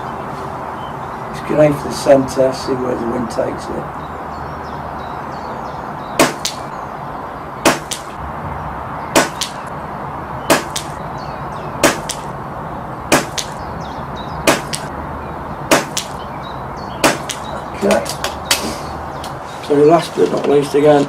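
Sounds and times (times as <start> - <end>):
air rifle shots: 6.2 - 6.7, 7.6 - 8.2, 9.1 - 9.7, 10.5 - 11.0, 11.8 - 12.3, 13.1 - 13.6, 14.4 - 14.9, 15.7 - 16.2, 17.0 - 17.6
wind hiss: 6.2 - 20.0.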